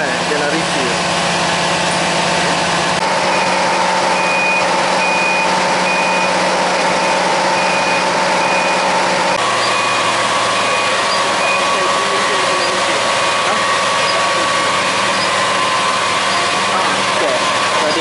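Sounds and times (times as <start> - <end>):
construction machine engine running: 0.0 - 18.0
backup alarm beeping: 4.1 - 6.4, 7.0 - 8.9.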